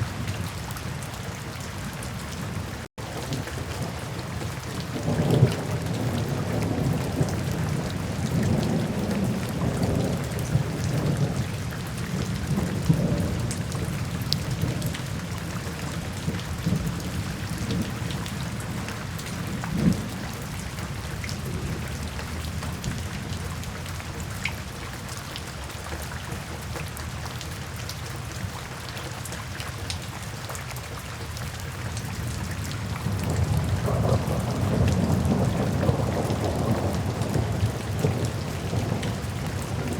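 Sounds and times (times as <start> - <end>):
rain falling into puddles: 0.0 - 39.9
rumbling thunder: 3.1 - 23.6, 32.1 - 39.9.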